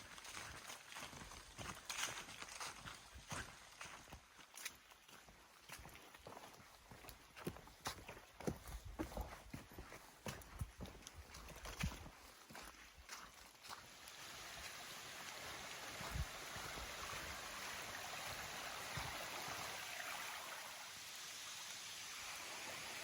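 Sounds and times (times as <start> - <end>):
footsteps: 0.0 - 14.7
faint rush of brook water: 0.0 - 23.0.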